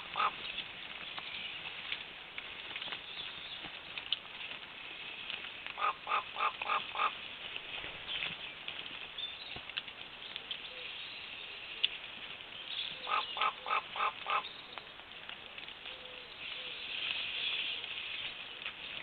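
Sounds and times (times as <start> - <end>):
vultures calling: 0.0 - 0.7, 5.7 - 7.3, 12.9 - 15.0
steady high hiss: 0.0 - 19.0.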